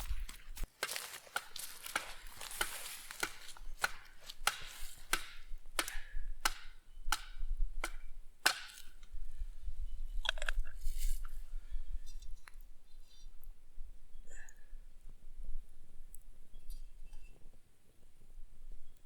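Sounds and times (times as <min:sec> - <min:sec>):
sharp cracks or knocks: 0:00.3 - 0:09.0.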